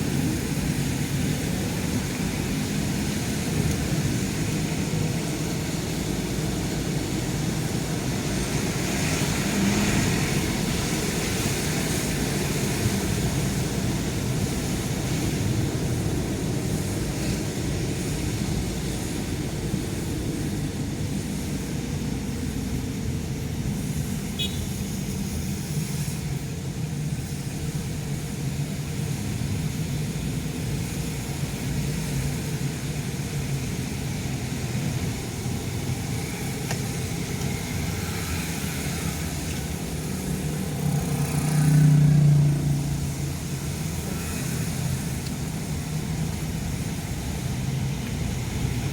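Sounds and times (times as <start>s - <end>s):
car engine and road noise: 0.0s - 48.9s.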